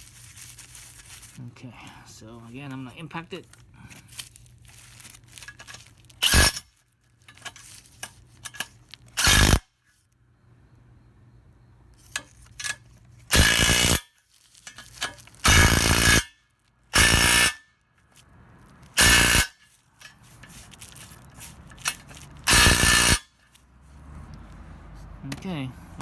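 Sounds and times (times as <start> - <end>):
impact wrench hammering: 6.2 - 6.6, 13.3 - 14.0, 15.4 - 16.3, 17.0 - 17.6, 19.0 - 19.6, 21.8 - 23.3.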